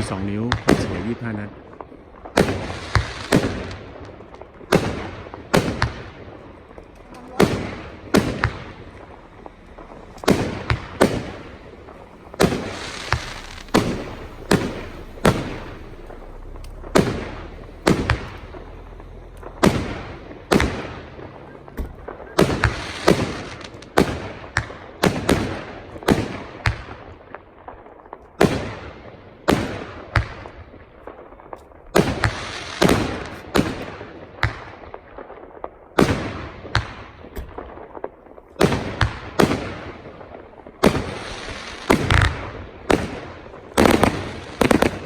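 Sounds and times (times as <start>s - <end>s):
firework bangs with crackle: 0.0s - 45.0s.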